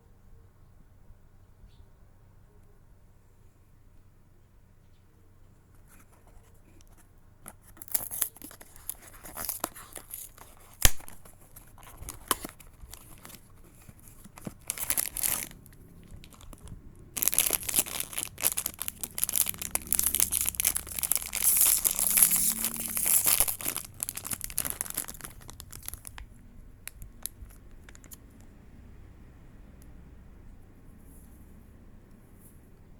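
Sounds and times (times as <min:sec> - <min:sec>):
packaging crinkling and tearing: 0:06.4 - 0:28.2.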